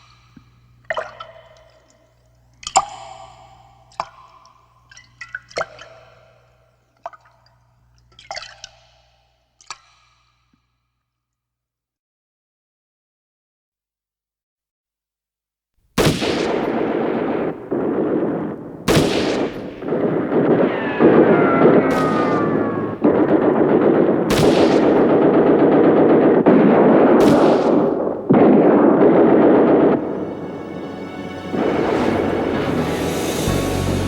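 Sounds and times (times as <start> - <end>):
continuous gunfire: 16.0 - 30.7
loud blasts: 16.0 - 34.0
falling tone: 16.5 - 34.0
music: 30.0 - 34.0.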